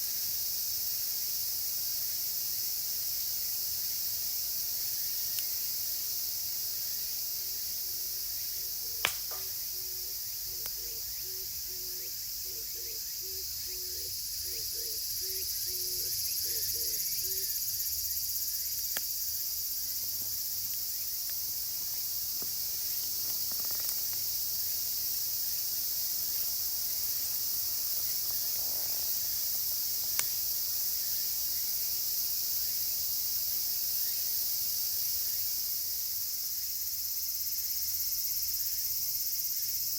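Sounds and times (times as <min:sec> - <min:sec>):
campfire crackles: 0:00.0 - 0:11.6, 0:18.3 - 0:36.5
cicadas shrilling: 0:00.0 - 0:39.9.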